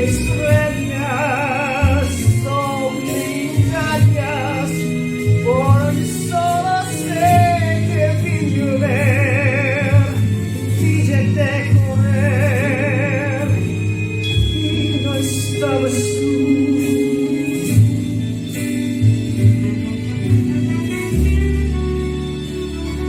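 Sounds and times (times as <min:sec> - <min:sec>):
person singing with vibrato: 0:00.0 - 0:18.4
slow ballad accompaniment: 0:00.0 - 0:23.0.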